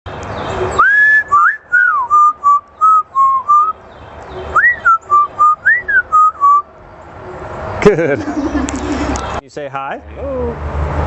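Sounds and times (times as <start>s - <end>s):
parrot whistling a tune: 0.8s - 3.8s, 4.6s - 6.7s.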